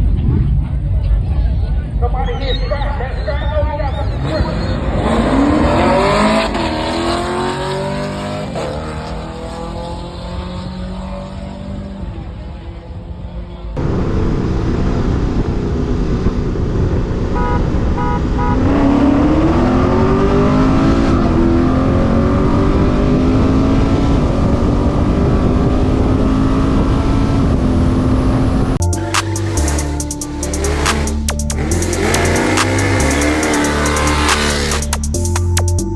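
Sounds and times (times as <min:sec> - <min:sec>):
car engine accelerating hard: 0:04.2 - 0:35.2
music with heavy beat: 0:28.8 - 0:35.9.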